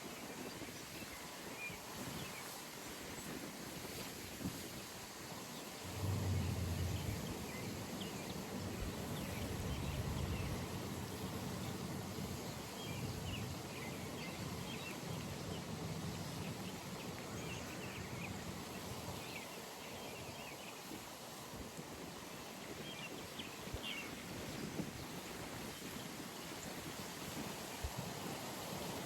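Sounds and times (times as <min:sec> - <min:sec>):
distant engine hum: 0:05.8 - 0:13.6.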